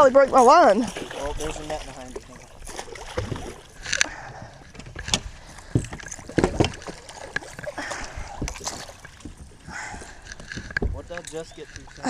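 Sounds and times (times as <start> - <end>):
knocks and thumps on a boat: 0.0 - 12.0
water splashing: 0.0 - 12.0.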